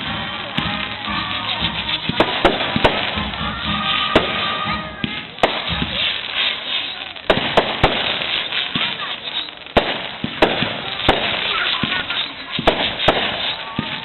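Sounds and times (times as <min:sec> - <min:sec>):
background music: 0:00.0 - 0:06.3
firework bangs: 0:00.0 - 0:14.0
fireworks crackling: 0:00.0 - 0:14.0.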